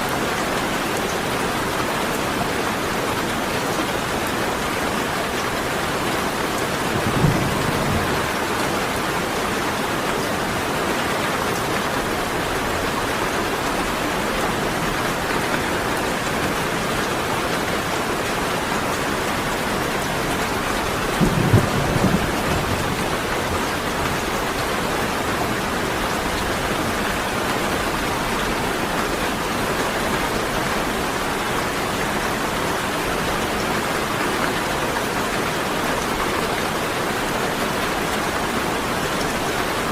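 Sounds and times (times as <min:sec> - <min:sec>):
rain falling: 0:00.0 - 0:39.9
low rumbles of thunder: 0:06.8 - 0:08.6, 0:21.1 - 0:23.2.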